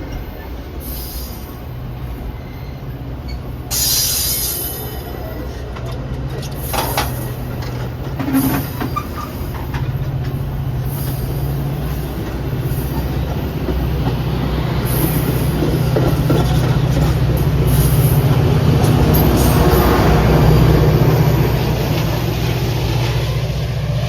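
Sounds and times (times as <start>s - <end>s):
diesel locomotive engine drone: 0.0s - 24.0s
rail noise: 0.0s - 24.0s.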